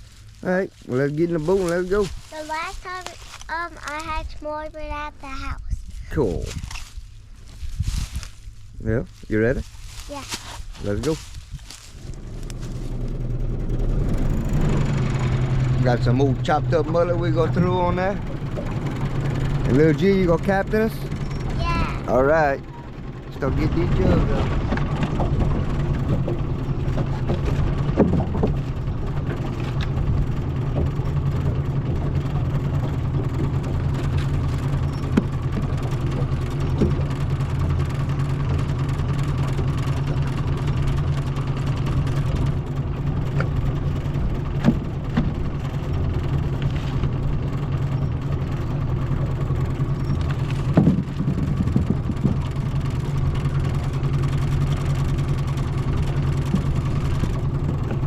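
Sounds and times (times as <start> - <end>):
outboard motor running: 0.0 - 58.0
short knocks: 50.6 - 52.6.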